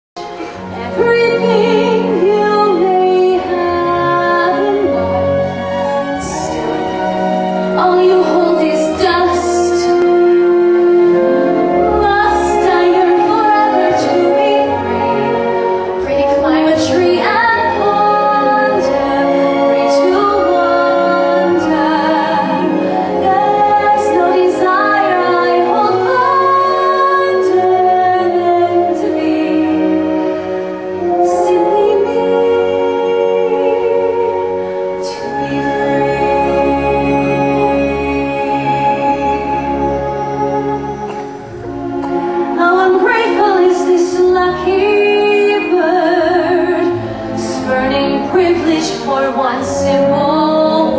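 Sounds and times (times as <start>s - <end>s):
sustained musical accompaniment: 0.2s - 50.9s
woman singing with vibrato: 0.7s - 5.2s, 11.5s - 30.4s, 31.0s - 40.0s, 42.5s - 50.9s.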